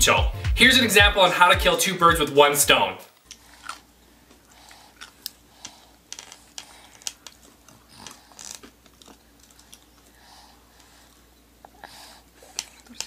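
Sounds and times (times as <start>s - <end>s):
baby chewing and lip smacking: 3.2s - 13.0s.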